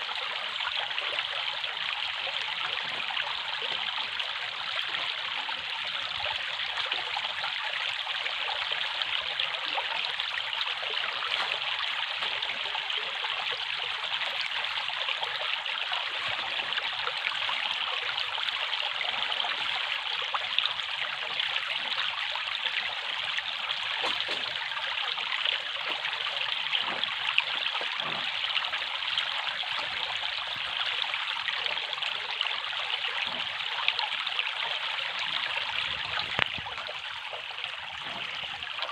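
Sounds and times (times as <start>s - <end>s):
running water trickling: 0.0s - 38.9s.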